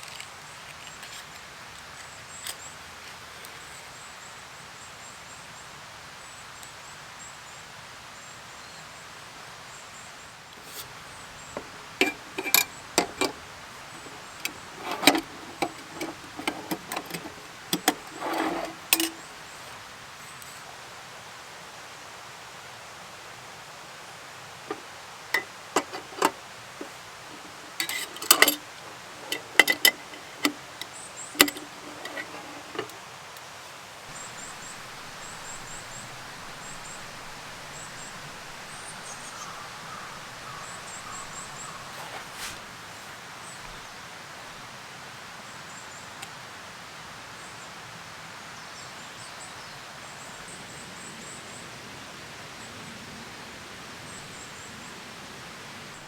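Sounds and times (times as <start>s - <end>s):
outdoor hiss: 0.0s - 56.0s
camp gear clicking and knocking: 10.6s - 19.3s, 24.6s - 33.0s, 34.0s - 42.8s.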